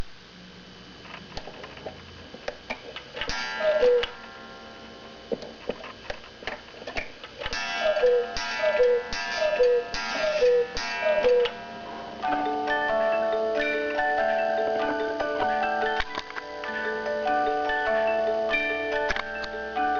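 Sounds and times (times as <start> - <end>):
cuckoo clock call: 3.2 - 4.6, 7.5 - 19.9.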